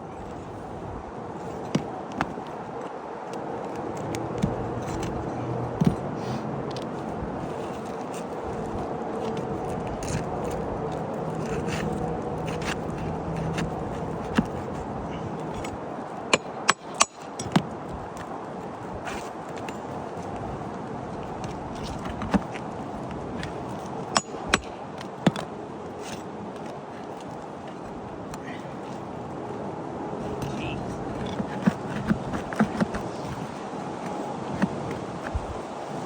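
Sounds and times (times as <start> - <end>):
scraping and handling shingles: 0.2 - 29.6, 30.2 - 36.0.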